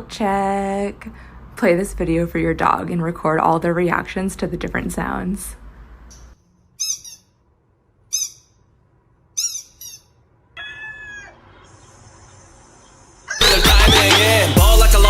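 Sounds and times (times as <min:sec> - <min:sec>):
high squeaky bird-like calls: 0:06.1 - 0:07.4, 0:08.1 - 0:08.7, 0:09.3 - 0:12.0, 0:13.3 - 0:13.6
loud music: 0:13.4 - 0:15.0.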